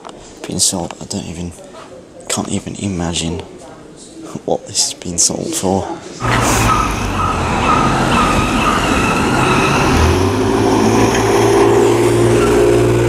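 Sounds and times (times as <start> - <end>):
car engine driving: 6.2 - 13.0
traffic noise: 6.2 - 13.0.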